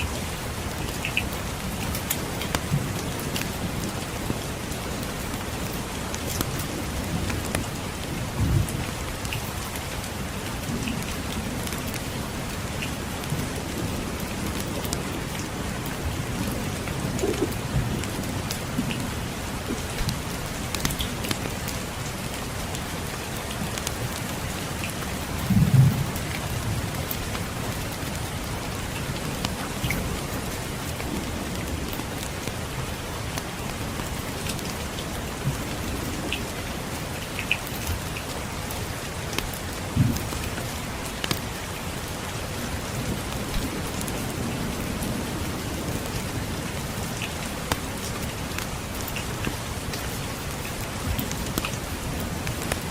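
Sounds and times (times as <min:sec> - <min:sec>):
steady rainfall: 0:00.0 - 0:52.9
distant thunder rumbles: 0:13.2 - 0:20.3, 0:25.4 - 0:27.0.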